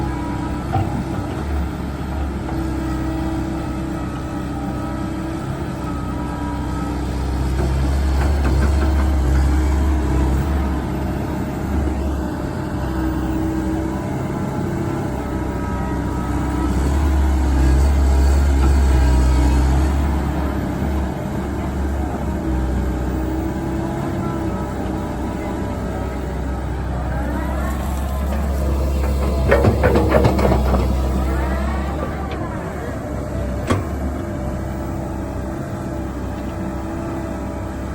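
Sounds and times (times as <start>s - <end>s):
excavator diesel engine digging: 0.0s - 37.9s.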